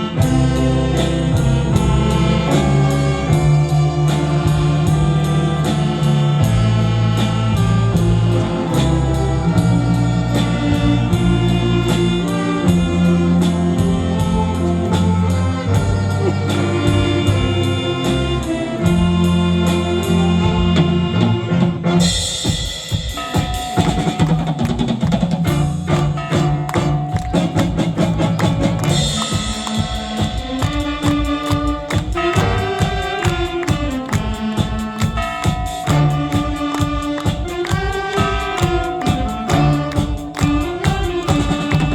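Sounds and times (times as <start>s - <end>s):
drum kit beat: 0.0s - 41.9s
saxophone big band playing: 0.0s - 41.9s.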